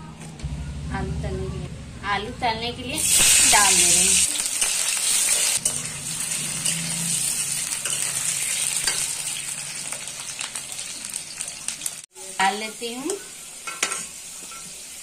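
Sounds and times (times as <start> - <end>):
potatoes sizzling in hot oil: 3.0 - 15.0
metal spatula scraping and tapping: 7.8 - 9.2, 13.1 - 14.8.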